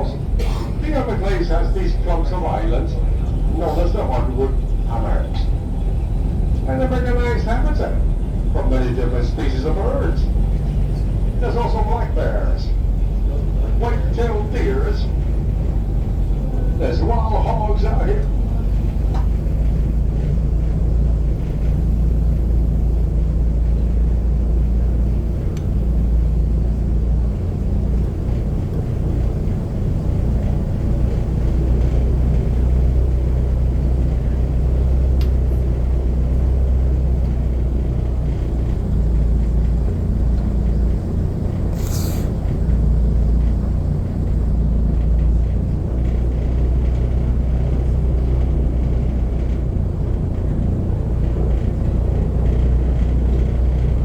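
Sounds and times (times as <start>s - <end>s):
airboat engine and propeller: 0.0s - 54.0s
brief hiss: 41.8s - 42.4s.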